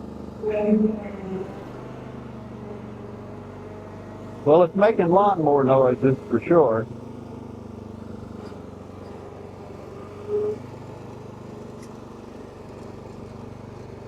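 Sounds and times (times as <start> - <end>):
lawnmower engine idling: 1.2 - 14.0.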